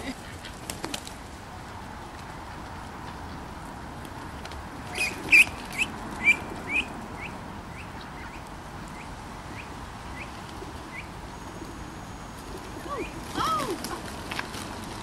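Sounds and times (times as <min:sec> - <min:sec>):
bird chirping: 0:04.9 - 0:13.2.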